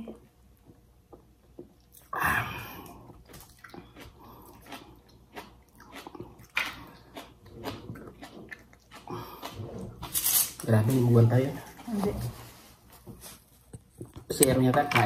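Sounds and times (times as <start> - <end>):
chewing with wet mouth clicks: 2.9 - 9.6.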